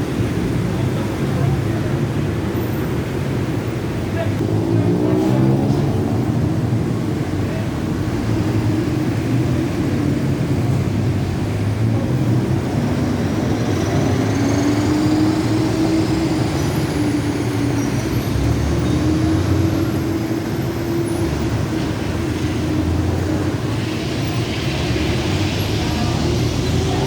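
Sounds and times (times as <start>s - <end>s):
train rumble: 0.0s - 27.0s.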